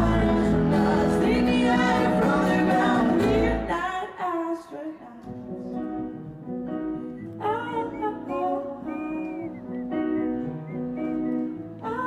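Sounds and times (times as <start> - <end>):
wordless vocal line: 0.0 - 4.8.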